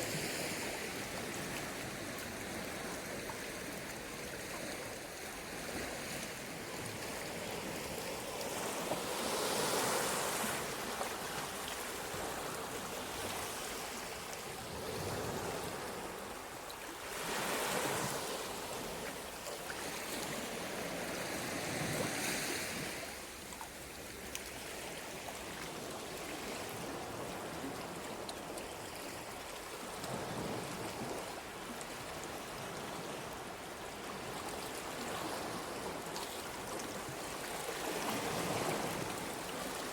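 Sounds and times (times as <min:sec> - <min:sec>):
sea surf on the shore: 0:00.0 - 0:39.9.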